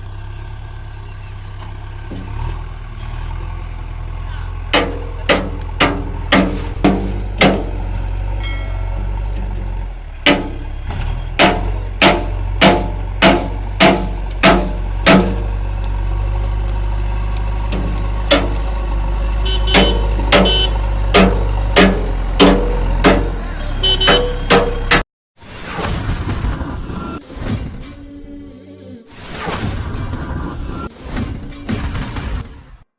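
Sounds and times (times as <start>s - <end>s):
tractor diesel engine running: 0.0s - 25.0s
sharp thumps: 4.7s - 15.6s, 17.4s - 18.9s, 19.5s - 25.0s.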